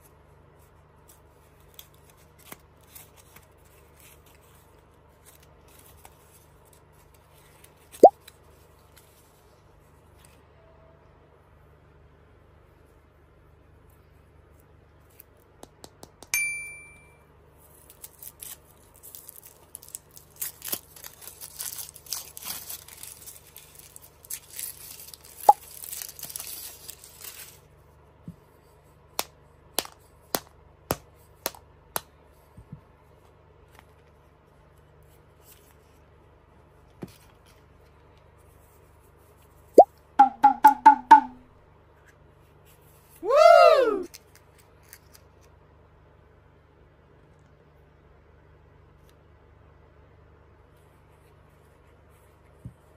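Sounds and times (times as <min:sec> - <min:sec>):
cartoon ding: 0:16.4 - 0:17.1, 0:40.2 - 0:41.4
foil wrapper crinkling: 0:17.7 - 0:27.8
bouncy pitched pops: 0:40.2 - 0:41.4
mallet tapping chocolate shell: 0:40.2 - 0:41.4.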